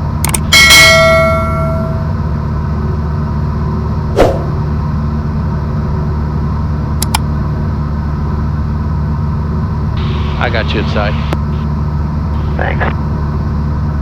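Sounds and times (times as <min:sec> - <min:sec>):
airplane engine and propeller drone: 0:00.0 - 0:14.0
ringing tone: 0:00.7 - 0:02.2
sharp clicks: 0:07.0 - 0:07.2.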